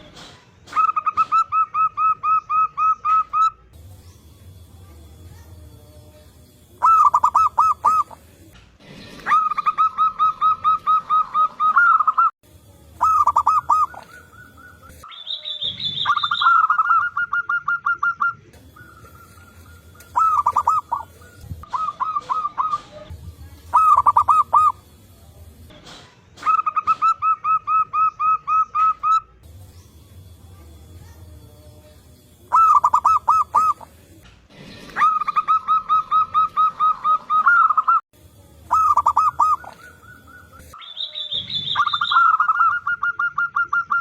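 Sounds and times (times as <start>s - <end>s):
doves cooing staccato: 0.6s - 3.6s, 6.8s - 8.3s, 9.2s - 12.3s, 13.0s - 15.1s, 16.0s - 24.9s, 26.4s - 29.3s, 32.5s - 34.2s, 34.8s - 38.0s, 38.7s - 40.8s, 41.6s - 44.0s
high thin bird call: 13.0s - 23.1s.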